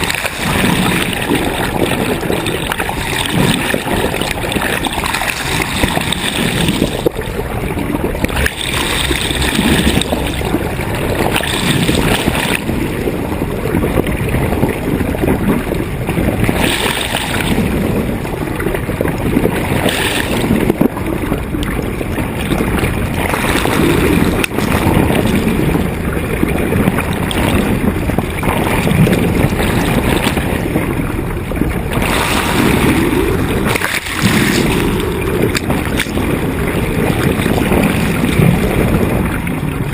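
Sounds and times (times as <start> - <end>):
water rushing along hull: 0.0 - 39.9
wind buffeting microphone: 0.0 - 39.9.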